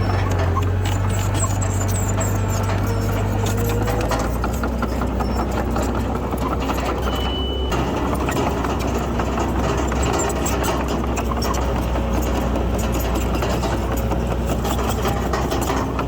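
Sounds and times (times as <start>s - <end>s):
high squeal: 0.0s - 8.5s
bulldozer diesel engine running: 0.0s - 16.0s
machine clanks and clicks: 0.0s - 16.0s.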